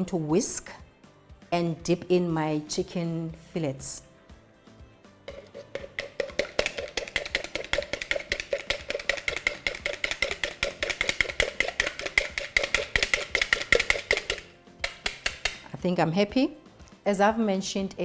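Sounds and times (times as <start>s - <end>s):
whisk clinking against bowl: 5.3s - 15.7s.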